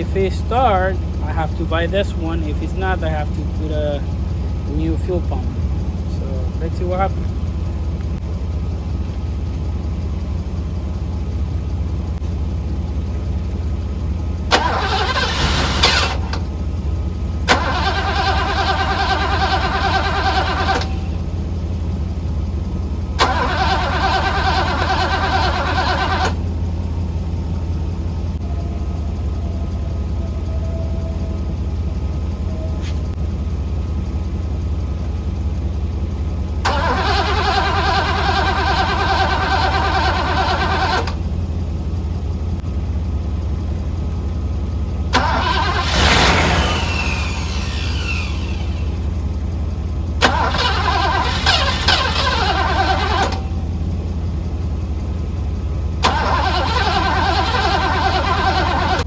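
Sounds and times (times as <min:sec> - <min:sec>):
car starter cranking engine: 0:13.4 - 0:33.2, 0:33.8 - 0:42.6, 0:44.9 - 0:59.0.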